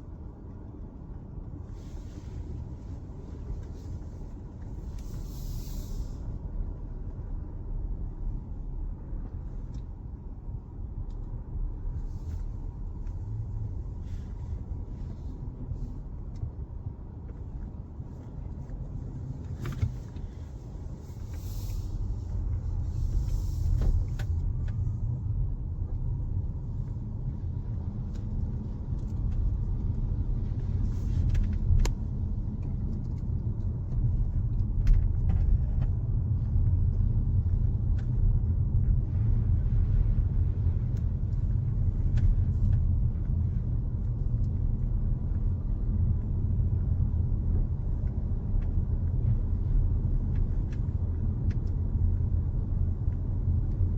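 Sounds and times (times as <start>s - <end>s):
car driving rumble: 0.0s - 53.9s.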